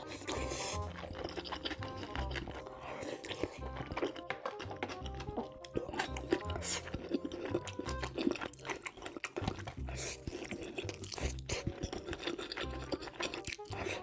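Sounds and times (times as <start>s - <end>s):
chewing and crunching food: 0.0s - 14.0s
background music with beat: 3.5s - 8.2s.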